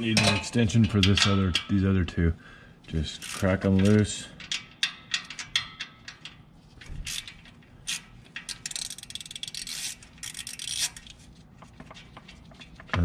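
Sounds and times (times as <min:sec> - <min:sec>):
ratchet wrench clicking: 0:03.2 - 0:06.4, 0:07.0 - 0:11.2.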